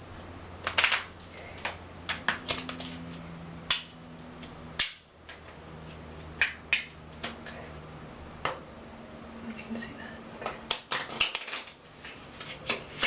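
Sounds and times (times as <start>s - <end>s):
playing cards snapping and tapping: 0.6s - 3.1s, 3.7s - 5.4s, 6.4s - 7.4s, 10.4s - 13.0s.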